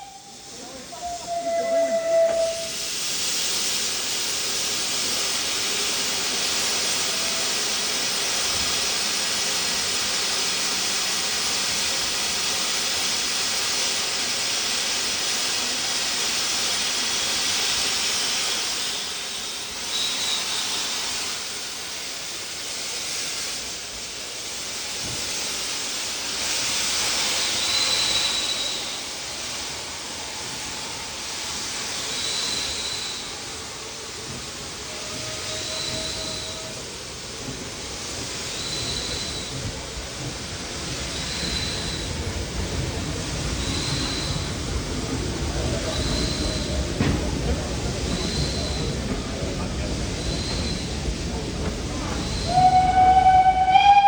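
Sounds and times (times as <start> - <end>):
steam locomotive hissing steam: 0.0 - 54.0.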